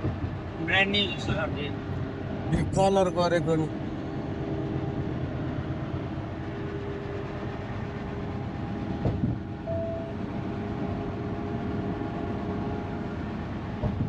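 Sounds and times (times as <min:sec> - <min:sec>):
truck road and engine noise: 0:00.0 - 0:14.0.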